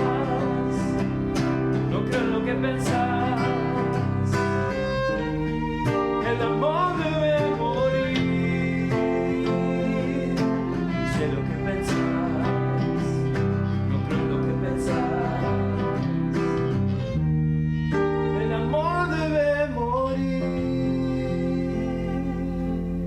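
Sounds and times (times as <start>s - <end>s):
bass line: 0.0s - 23.0s
strummed acoustic guitars: 0.0s - 23.0s.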